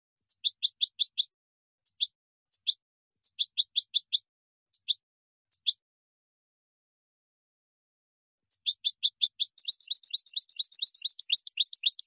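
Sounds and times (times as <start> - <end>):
small bird chirping: 0.2 - 5.9, 8.5 - 12.0.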